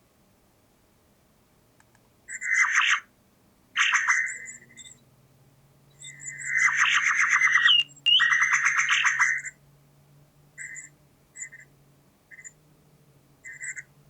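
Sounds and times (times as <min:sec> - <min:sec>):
faint bird chirps: 0:03.8 - 0:05.0, 0:05.9 - 0:09.6, 0:10.6 - 0:11.7, 0:12.3 - 0:12.6, 0:13.4 - 0:13.9
bird rattling call: 0:06.4 - 0:09.5.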